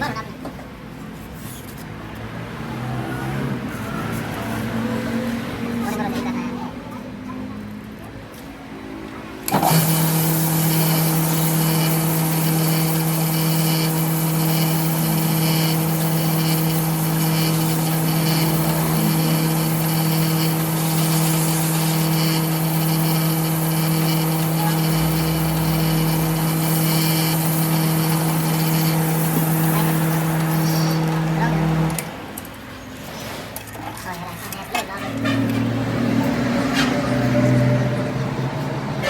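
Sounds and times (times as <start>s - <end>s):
machine humming: 9.4s - 32.2s.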